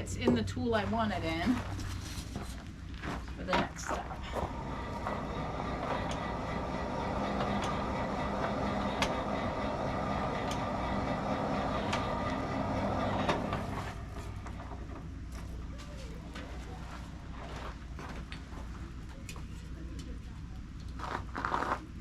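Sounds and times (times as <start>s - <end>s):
forge blower rushing air: 3.4s - 18.2s.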